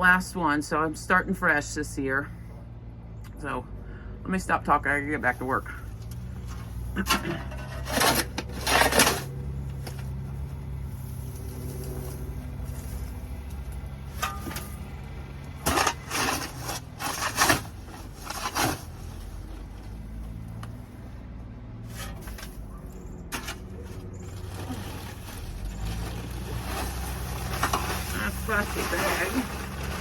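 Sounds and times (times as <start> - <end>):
tool scraping floor litter: 5.4 - 19.8, 21.8 - 22.7, 23.3 - 30.0.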